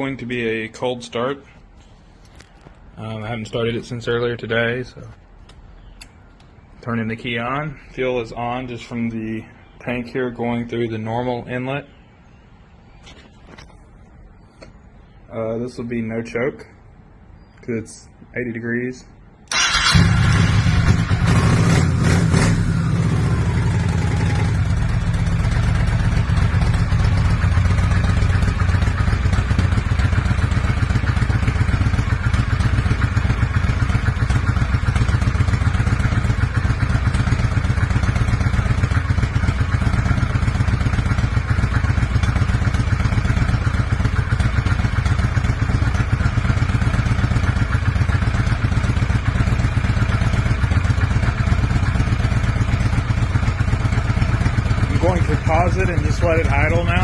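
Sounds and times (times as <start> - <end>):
motorcycle engine idling: 19.5 - 57.0.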